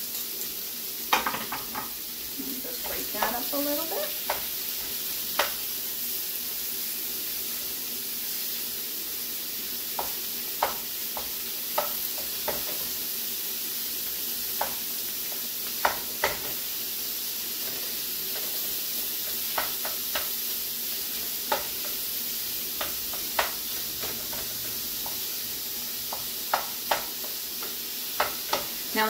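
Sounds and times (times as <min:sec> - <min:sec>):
food sizzling in a skillet: 0:00.0 - 0:29.0
spatula scraping a pan: 0:17.6 - 0:20.4.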